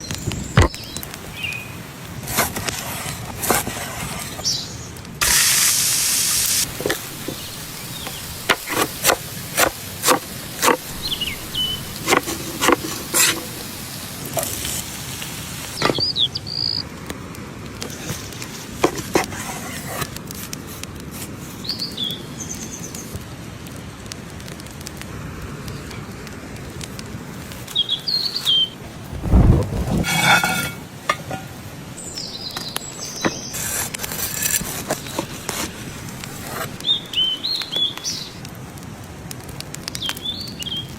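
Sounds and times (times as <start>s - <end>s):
loud hiss: 5.2s - 16.6s
birds chirping: 6.7s - 13.8s, 15.8s - 16.8s, 27.7s - 29.5s, 32.0s - 33.6s.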